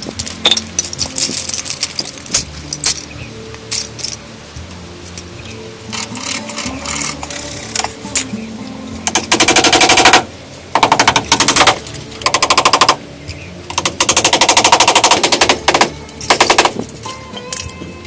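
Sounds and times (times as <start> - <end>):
rapid knocking bursts: 9.1 - 13.0, 13.7 - 16.8.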